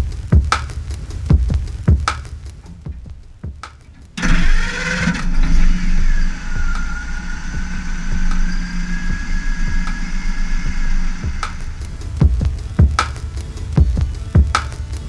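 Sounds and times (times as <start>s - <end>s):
car engine idling: 4.1s - 14.3s.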